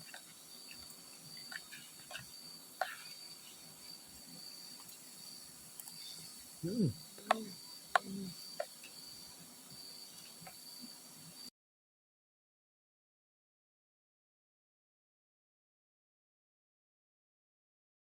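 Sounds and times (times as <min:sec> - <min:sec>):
crickets trilling: 0:00.0 - 0:11.5
person humming: 0:06.6 - 0:08.4.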